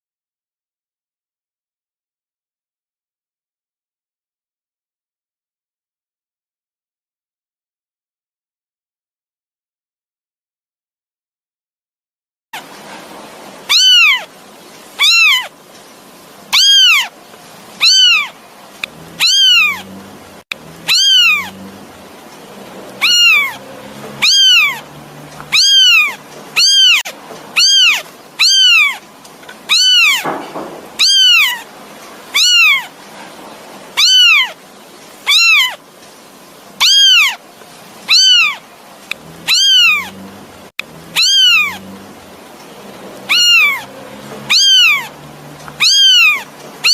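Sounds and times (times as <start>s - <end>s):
kitten meowing: 13.7s - 14.3s, 15.0s - 15.5s, 16.5s - 17.1s, 17.8s - 19.9s, 20.8s - 21.6s, 23.0s - 29.0s, 29.7s - 31.7s, 32.3s - 33.0s, 34.0s - 34.6s, 35.2s - 35.8s, 36.8s - 37.4s, 38.1s - 38.6s, 39.2s - 40.2s, 41.1s - 41.9s, 43.3s - 46.9s.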